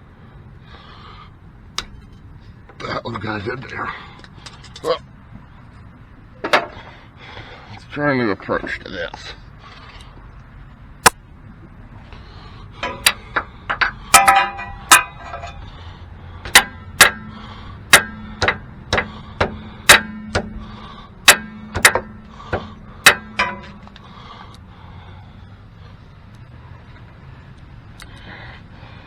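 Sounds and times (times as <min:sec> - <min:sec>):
sharp metal-on-metal taps: 0:01.8 - 0:02.3, 0:12.8 - 0:15.6, 0:16.5 - 0:20.6, 0:21.2 - 0:24.0.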